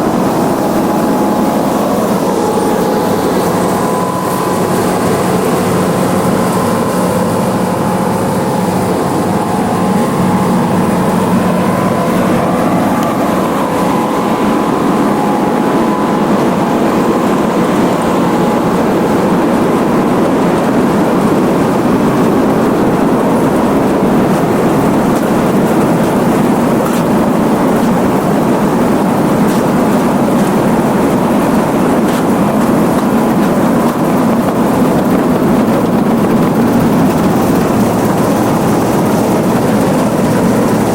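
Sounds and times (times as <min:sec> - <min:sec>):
diesel engine running under load: 0:00.0 - 0:40.9
faint whine: 0:00.0 - 0:40.9.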